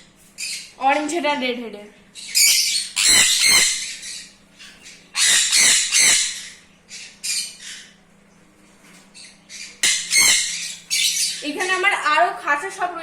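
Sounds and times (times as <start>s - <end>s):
parrots screeching: 2.2s - 8.0s, 9.2s - 11.5s.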